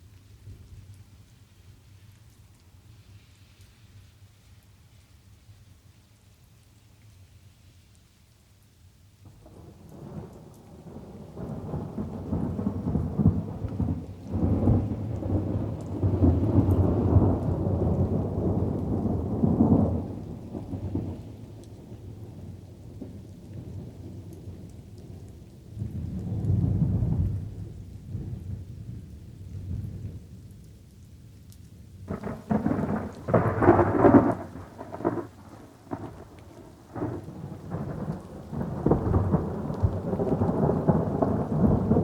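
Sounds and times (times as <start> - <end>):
soft patter of rain: 0.0 - 42.0
thunder rumbling: 9.3 - 30.4, 32.1 - 42.0.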